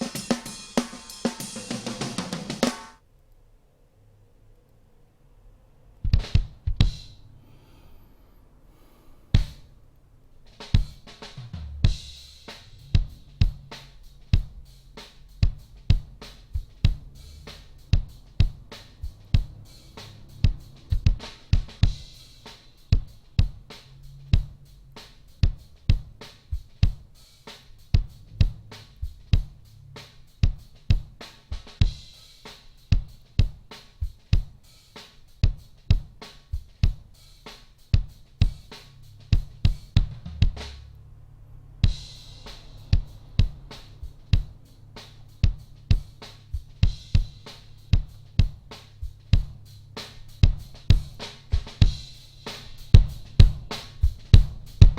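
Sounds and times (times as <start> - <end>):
hi-hat and cymbals: 0.0 - 3.0, 6.0 - 7.4, 9.2 - 54.9
snare drum: 0.0 - 3.0, 6.1 - 7.2, 9.4 - 9.7, 10.5 - 40.9, 41.8 - 54.9
kick drum: 6.0 - 7.0, 9.4 - 9.6, 17.9 - 19.6, 23.0 - 23.6, 25.4 - 27.1, 33.0 - 34.6, 39.4 - 40.6, 45.4 - 46.1, 46.8 - 48.6, 49.3 - 49.6, 50.4 - 52.0, 52.9 - 54.9.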